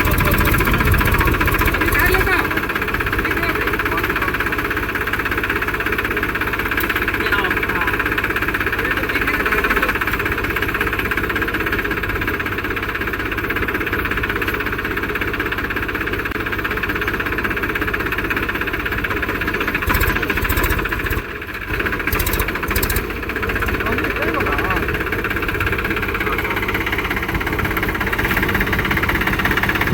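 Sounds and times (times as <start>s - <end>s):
tractor diesel engine knocking: 0.0s - 29.9s.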